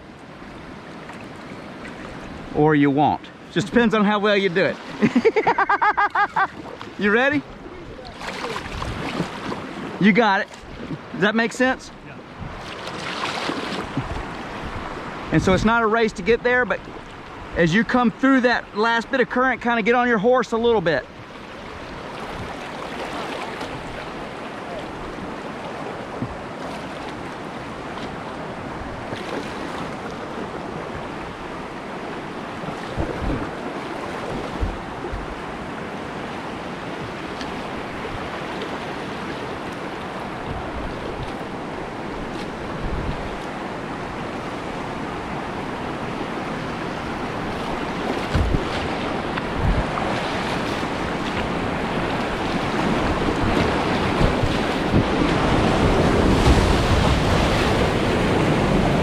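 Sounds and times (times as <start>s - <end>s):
whitewater rushing: 1.4s - 19.2s, 20.1s - 59.0s
wind thumps on microphone: 12.4s - 12.7s, 13.7s - 15.0s, 26.1s - 26.5s, 32.6s - 35.6s, 40.4s - 41.5s, 42.2s - 43.6s, 47.0s - 59.0s.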